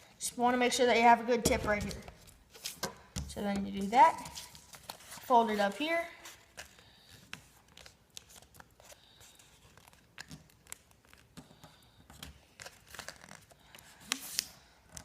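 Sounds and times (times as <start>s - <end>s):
paper folding and crinkling: 3.8s - 15.0s.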